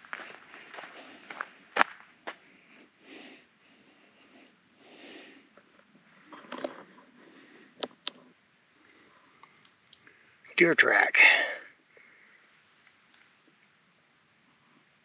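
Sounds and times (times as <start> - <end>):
footsteps: 0.0 - 2.4
person breathing: 0.2 - 1.7, 2.3 - 5.6, 7.1 - 7.9, 11.2 - 12.6.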